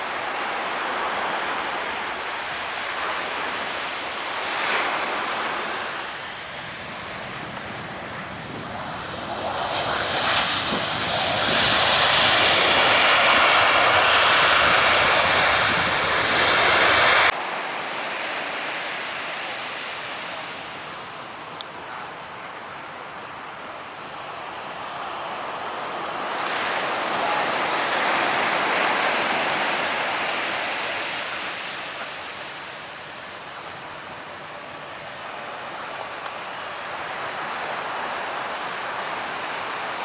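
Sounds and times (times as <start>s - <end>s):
beach surf: 0.0s - 40.0s
wind: 0.0s - 40.0s
plane passing close: 6.0s - 17.4s.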